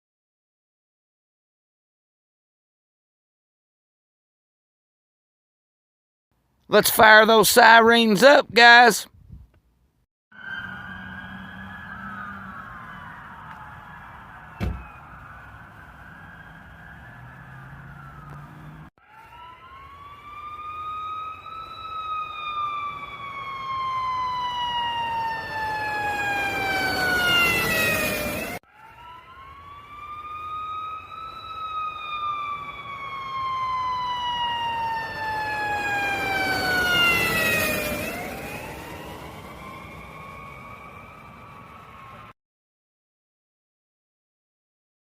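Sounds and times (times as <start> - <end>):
emergency vehicle siren wailing: 10.3 - 42.4.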